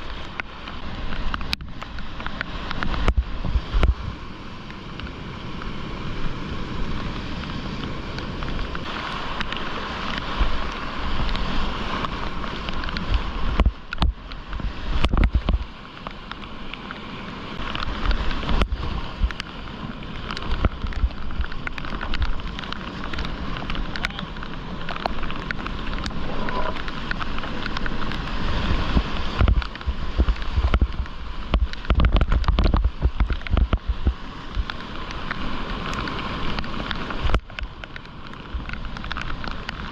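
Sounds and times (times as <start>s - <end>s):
water splashes: 0.0s - 39.9s
whitewater rushing: 0.0s - 39.9s
wind buffeting microphone: 10.0s - 15.8s, 17.6s - 37.8s.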